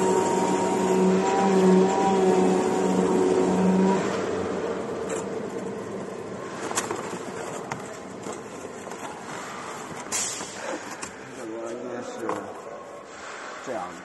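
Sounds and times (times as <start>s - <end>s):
machine running down: 0.0s - 5.0s
motor whine: 0.0s - 5.0s.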